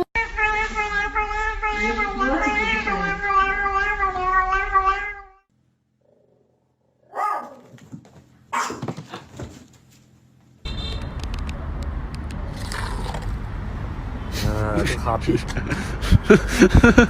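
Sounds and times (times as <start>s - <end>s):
pet crying: 7.1s - 7.8s, 8.6s - 9.0s.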